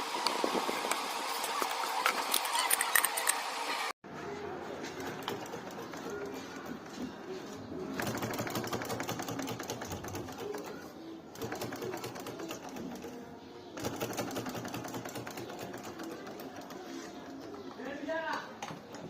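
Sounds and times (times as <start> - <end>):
sewing machine running: 8.0 - 10.7, 13.8 - 16.8.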